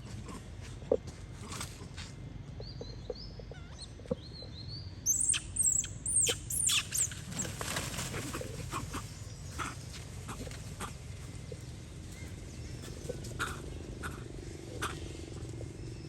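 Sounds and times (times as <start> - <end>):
monkeys shrieking: 5.1 - 11.1, 13.2 - 15.5.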